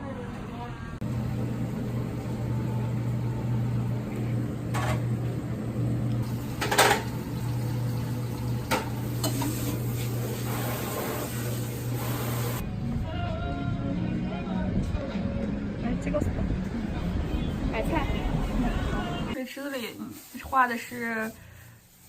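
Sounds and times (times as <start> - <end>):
kitchen appliance humming: 1.0 - 12.6
dishes clattering: 6.6 - 7.2, 8.6 - 9.8.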